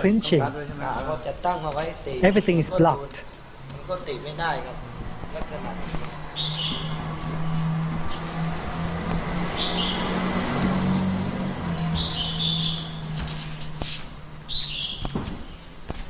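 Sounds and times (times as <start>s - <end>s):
bird chirping call: 6.3s - 7.1s, 9.6s - 10.1s, 11.8s - 13.2s, 14.5s - 15.7s.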